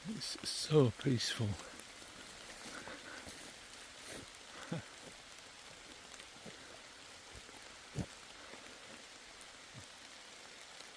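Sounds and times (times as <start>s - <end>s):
rain falling in woodland: 0.0s - 10.9s.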